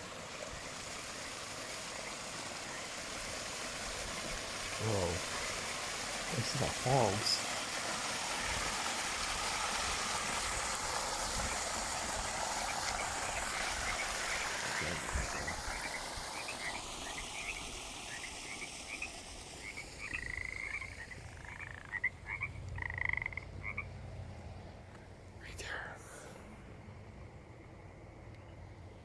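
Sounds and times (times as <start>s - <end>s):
small waterfall rushing: 0.0s - 23.3s
frogs chirping: 11.5s - 24.0s.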